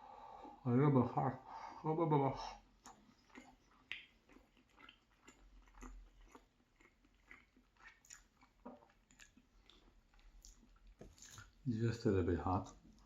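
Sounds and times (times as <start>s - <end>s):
close chewing mouth clicks: 2.8s - 11.5s.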